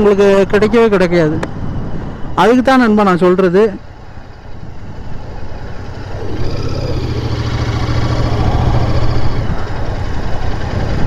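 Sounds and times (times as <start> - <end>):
motorcycle engine running: 3.8 - 11.0.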